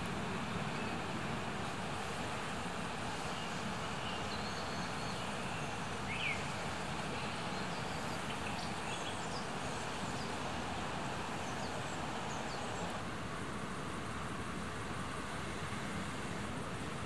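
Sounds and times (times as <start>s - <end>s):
small birds chirping: 3.3s - 13.0s.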